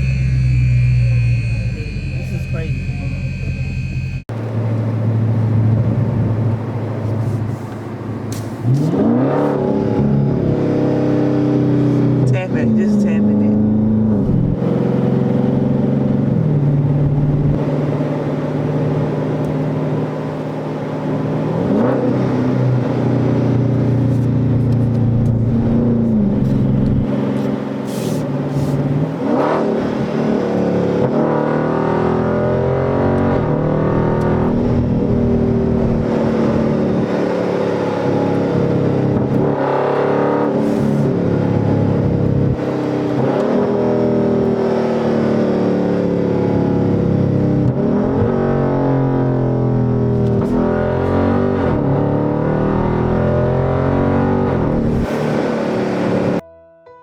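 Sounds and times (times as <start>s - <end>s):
car engine running: 0.0s - 8.8s.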